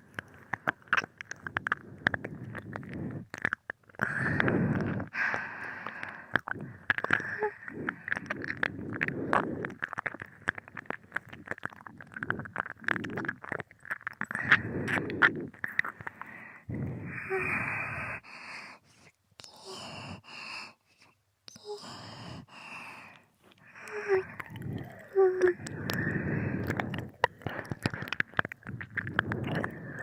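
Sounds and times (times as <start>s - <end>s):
tongue and lip clicks: 0.0s - 18.2s, 21.0s - 30.0s
wet licking mouth sounds: 0.1s - 5.2s, 23.5s - 30.0s
breath: 1.5s - 3.3s, 4.0s - 9.8s, 14.3s - 30.0s.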